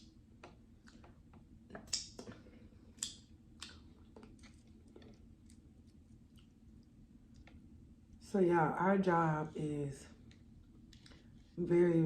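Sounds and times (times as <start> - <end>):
mouth chewing smacks: 0.8 - 7.7.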